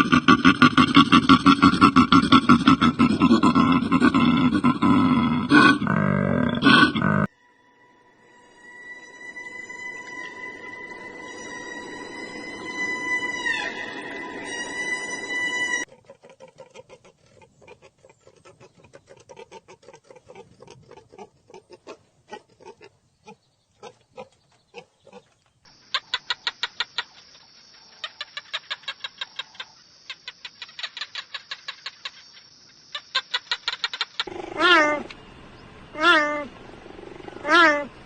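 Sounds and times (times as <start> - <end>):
held pitched tone: 5.7 - 15.9.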